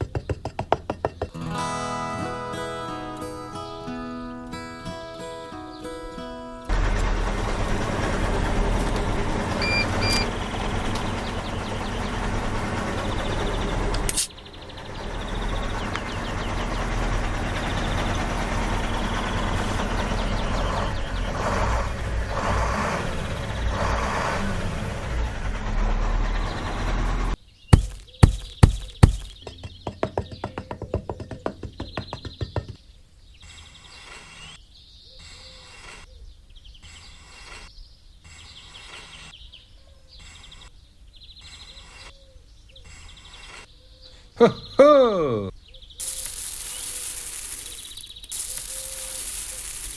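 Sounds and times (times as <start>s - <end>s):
sharp knocks or clicks: 0.0s - 1.4s, 27.8s - 32.8s
small motor running: 27.8s - 29.4s, 46.0s - 49.9s.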